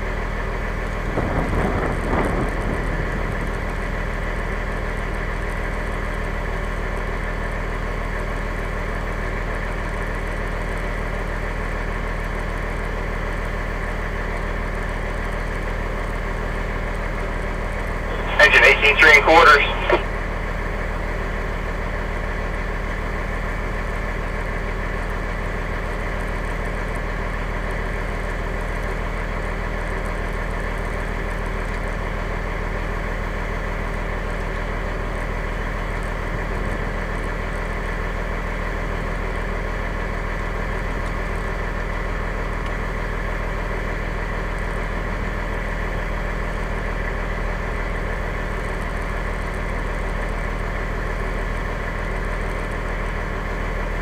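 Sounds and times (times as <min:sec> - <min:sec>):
diesel engine humming: 0:14.8 - 0:25.6.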